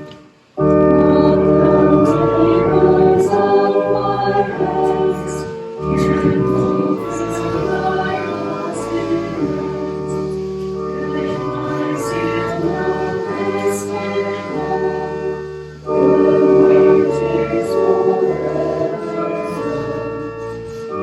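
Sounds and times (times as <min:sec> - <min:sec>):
church choir singing a hymn: 0:00.0 - 0:21.0.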